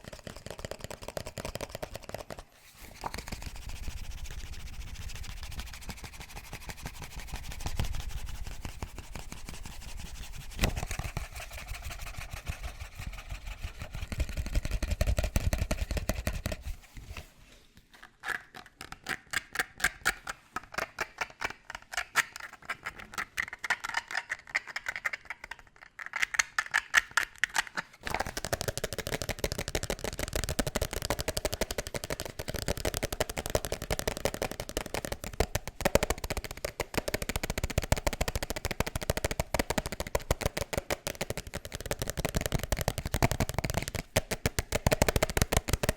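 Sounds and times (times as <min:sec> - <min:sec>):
rapid tapping on objects: 0:00.0 - 0:02.4, 0:03.0 - 0:16.6, 0:26.3 - 0:45.9
fast scratching on objects: 0:00.0 - 0:17.2.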